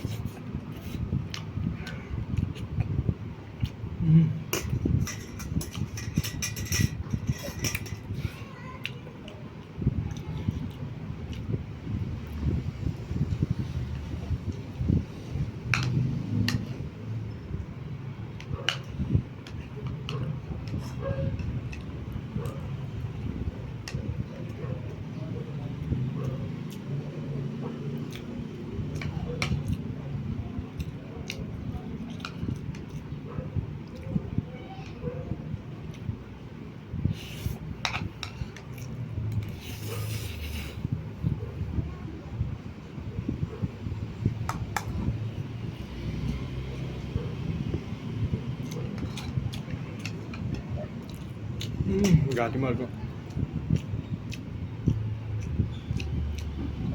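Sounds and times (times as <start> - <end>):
person chewing noodles: 26.2 - 29.9, 37.1 - 41.0, 45.6 - 52.1, 53.2 - 56.6.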